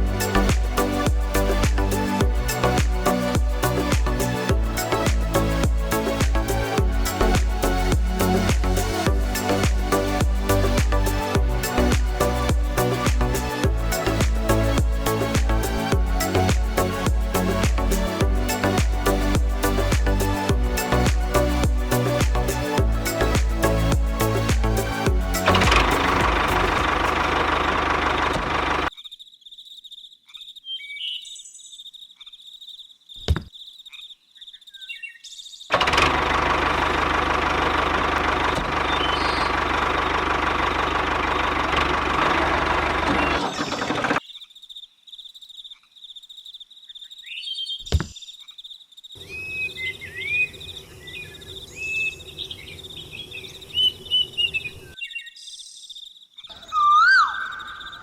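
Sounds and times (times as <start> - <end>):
birds chirping: 0.0 - 27.5, 38.3 - 41.6, 42.2 - 58.0
small engine running: 0.0 - 28.9, 35.7 - 44.2.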